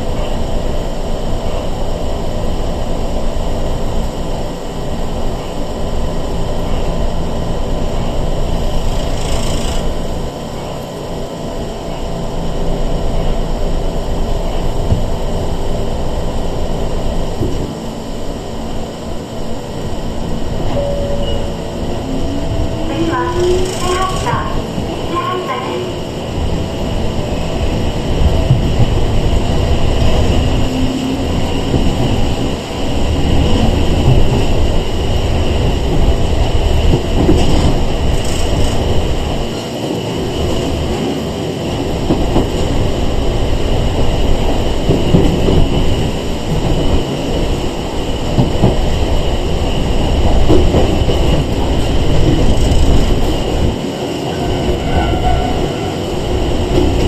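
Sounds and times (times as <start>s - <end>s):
train wheels rumbling: 0.0s - 57.0s.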